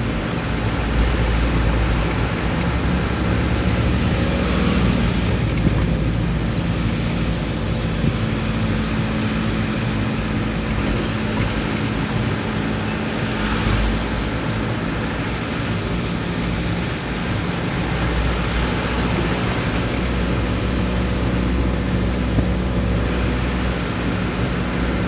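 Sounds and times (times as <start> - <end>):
truck engine humming: 0.0 - 25.0.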